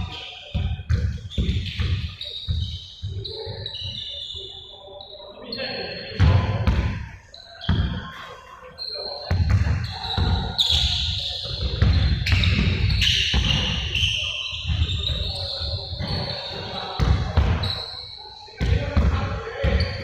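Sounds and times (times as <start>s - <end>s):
basketballs bouncing on floor: 0.0s - 3.2s, 6.2s - 8.0s, 9.3s - 14.0s, 14.6s - 17.8s, 18.6s - 20.0s
shoe squeaks: 0.0s - 6.4s, 7.2s - 20.0s.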